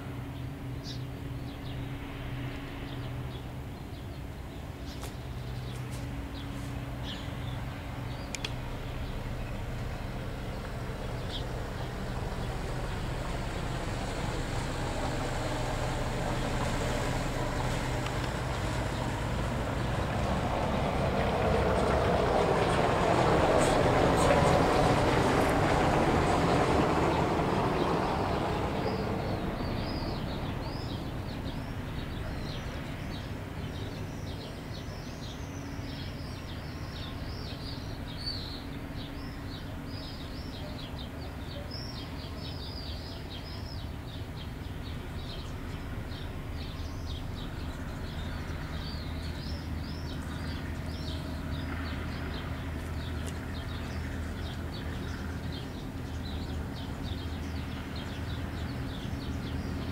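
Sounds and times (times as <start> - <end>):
low engine hum: 0.0 - 59.9
passing vehicle: 5.5 - 33.8
small birds chirping rapidly: 27.8 - 59.9.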